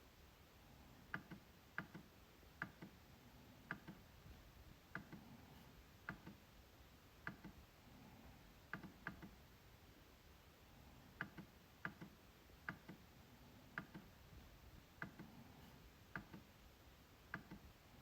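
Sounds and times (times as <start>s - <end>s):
trackpad clicks: 1.1s - 3.0s, 3.7s - 4.1s, 4.9s - 5.2s, 6.0s - 6.4s, 7.2s - 7.6s, 8.7s - 9.4s, 11.2s - 13.0s, 13.7s - 14.2s, 16.1s - 16.5s, 17.3s - 17.7s.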